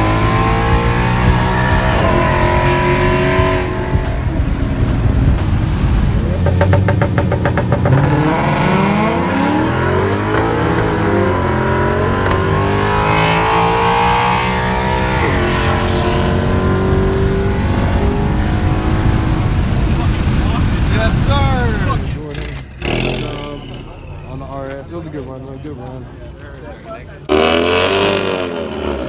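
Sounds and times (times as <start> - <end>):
car engine accelerating hard: 0.0 - 24.9, 27.3 - 29.0.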